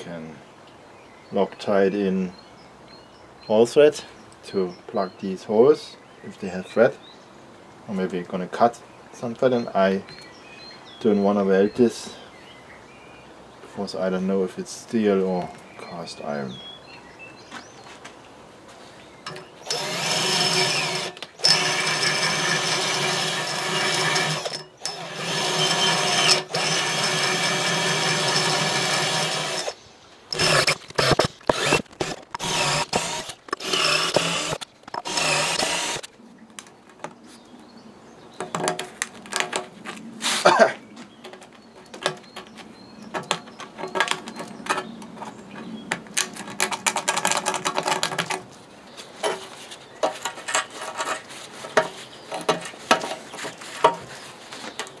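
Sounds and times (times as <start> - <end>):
handheld electric power tool running: 19.3 - 36.1
scattered clicks and knocks: 30.3 - 37.2, 41.2 - 48.4.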